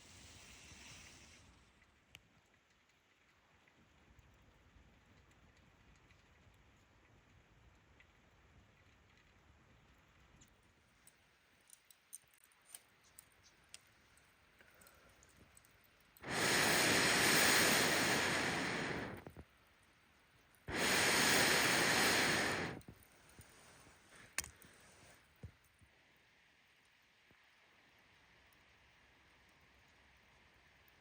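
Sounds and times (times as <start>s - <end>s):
burning wood crackling: 12.4s - 19.4s, 20.7s - 25.1s
air blown into campfire: 16.2s - 19.4s, 20.7s - 22.9s.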